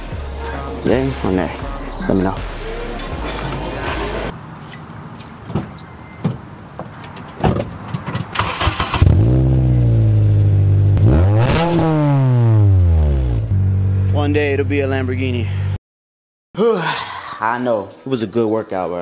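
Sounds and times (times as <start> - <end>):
car engine starting and revving: 8.2 - 14.6.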